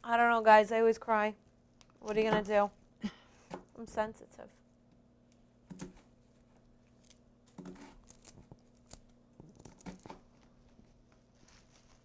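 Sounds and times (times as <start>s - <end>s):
knife cutting vegetables on board: 7.5s - 8.5s.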